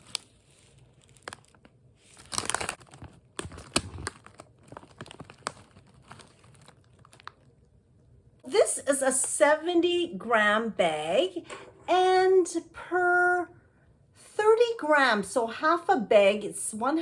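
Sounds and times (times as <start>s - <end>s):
chip bag crinkling: 0.0s - 7.7s.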